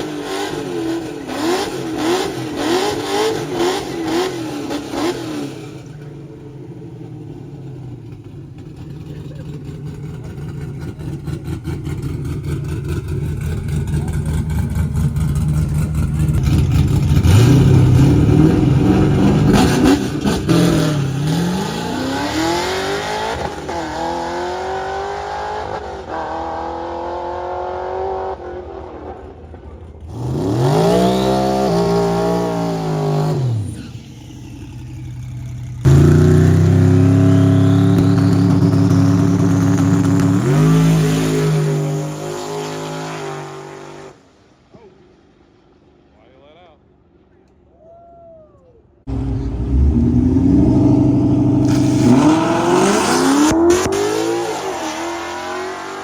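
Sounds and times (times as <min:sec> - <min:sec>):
racing car engines accelerating: 0:00.0 - 0:44.2, 0:49.1 - 0:56.0
engine revving: 0:09.4 - 0:28.9, 0:30.1 - 0:44.2, 0:49.1 - 0:56.0
loud steady engine note: 0:49.1 - 0:53.0.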